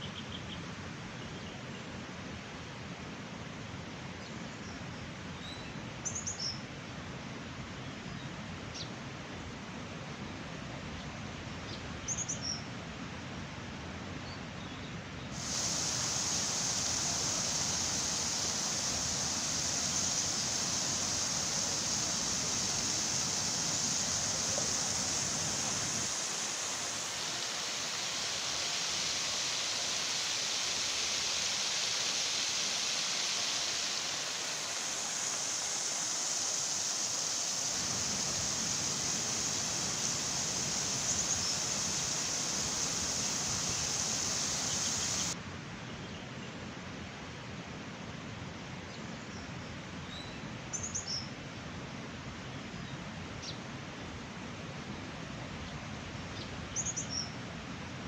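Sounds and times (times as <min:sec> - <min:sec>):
flowing water rushing: 0:15.4 - 0:45.4
faint bird chirps: 0:38.7 - 0:45.4, 0:56.4 - 0:57.4.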